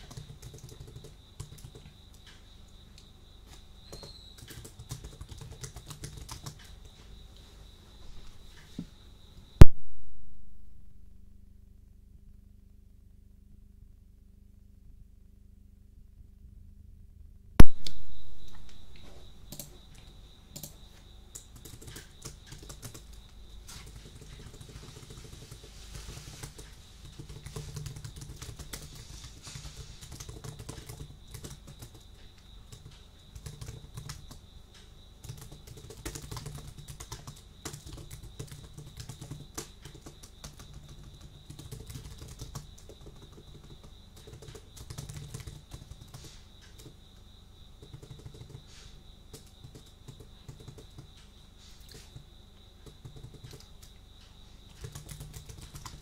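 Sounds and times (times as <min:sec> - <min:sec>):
typing on computer keyboard: 0:00.0 - 0:02.4, 0:03.8 - 0:07.0, 0:19.5 - 0:34.4, 0:35.2 - 0:47.0, 0:47.7 - 0:52.2, 0:52.8 - 0:54.0, 0:54.7 - 0:56.0
faint steady high tone: 0:17.6 - 0:21.0.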